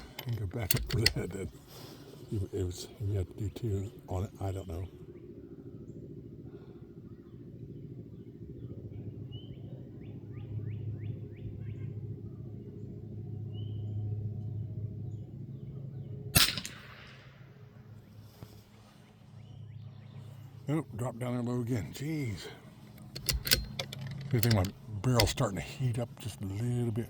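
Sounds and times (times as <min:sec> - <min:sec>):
birds chirping: 0:00.0 - 0:27.0
steady low hum: 0:00.0 - 0:27.0
rifle shot: 0:16.4 - 0:17.5.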